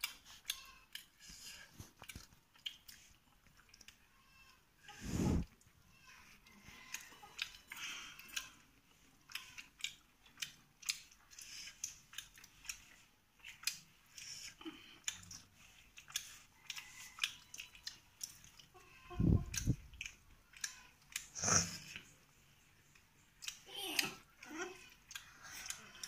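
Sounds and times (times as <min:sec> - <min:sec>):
people chewing: 0:00.0 - 0:26.0
mouth clicks: 0:19.1 - 0:22.0.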